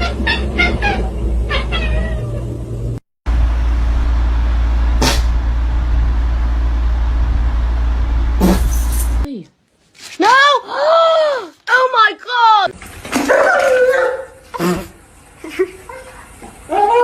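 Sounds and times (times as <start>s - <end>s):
cat meowing: 0.0s - 2.4s
steady noisy rumble: 0.0s - 9.3s
brief sharp sound: 5.0s - 5.4s.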